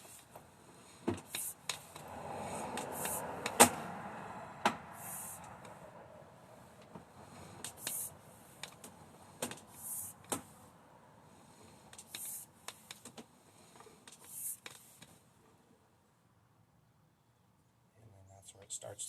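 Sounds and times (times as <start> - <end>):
high hissing rasps: 1.3 - 3.6, 4.3 - 5.5, 7.7 - 8.2, 9.7 - 10.2, 12.0 - 12.5.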